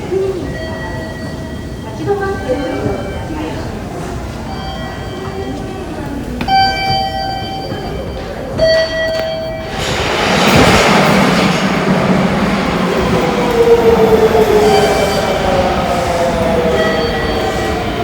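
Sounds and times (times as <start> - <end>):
subway train rumbling: 0.0 - 18.0
train gliding whine: 8.6 - 18.0.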